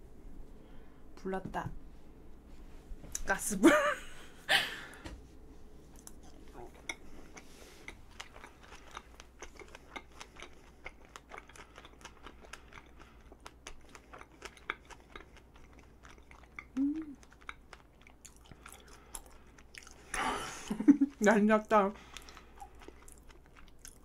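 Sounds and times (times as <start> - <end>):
person humming: 16.8 - 17.2.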